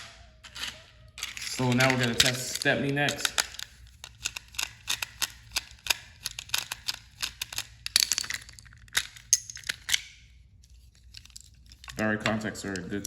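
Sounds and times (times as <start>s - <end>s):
plastic toy clicking and tapping: 3.1s - 8.1s.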